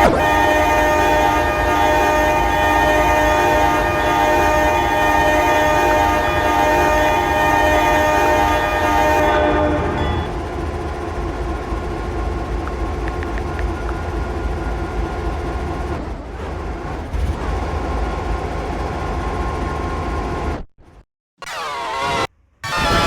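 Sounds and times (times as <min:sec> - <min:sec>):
freight train rumbling: 0:00.0 - 0:20.6.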